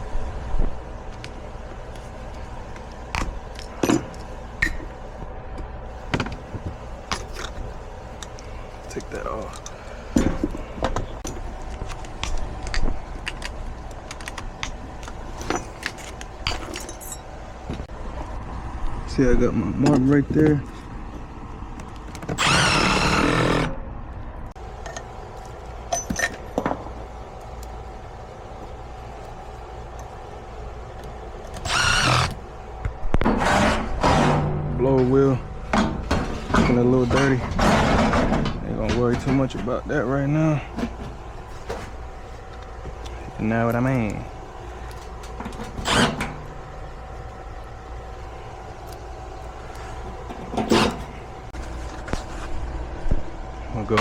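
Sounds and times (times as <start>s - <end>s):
low steady hum: 0.0s - 54.0s
metal tools clinking: 15.4s - 17.3s
power tool running: 22.3s - 23.8s, 31.6s - 32.5s, 45.8s - 46.5s.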